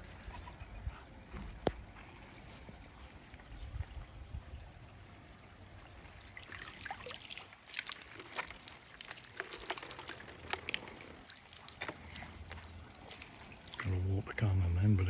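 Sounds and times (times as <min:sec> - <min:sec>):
pond water trickling: 0:00.0 - 0:15.0
splashes and clicks on water: 0:06.0 - 0:14.0.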